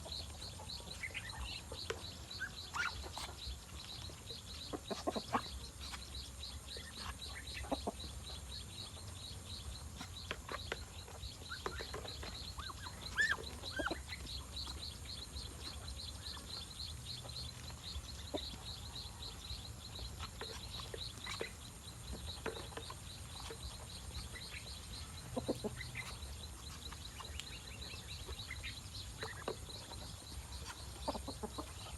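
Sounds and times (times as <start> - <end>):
poultry clucking: 0.0 - 31.9.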